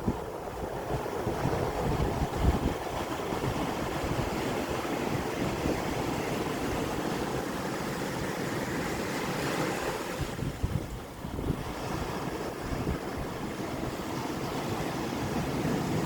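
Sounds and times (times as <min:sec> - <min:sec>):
sea water rushing: 0:00.0 - 0:16.0
wind buffeting microphone: 0:00.0 - 0:16.0.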